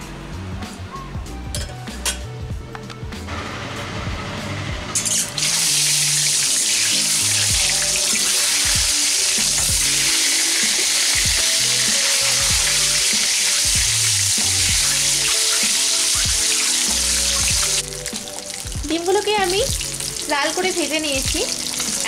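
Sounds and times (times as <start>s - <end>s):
eggs sizzling in hot oil: 4.9s - 22.0s.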